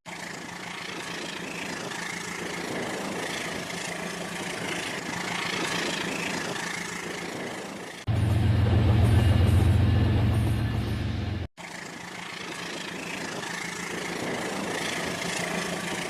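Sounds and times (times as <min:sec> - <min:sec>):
model train whirring on track: 0:00.1 - 0:16.0
steady low drone: 0:08.0 - 0:11.5.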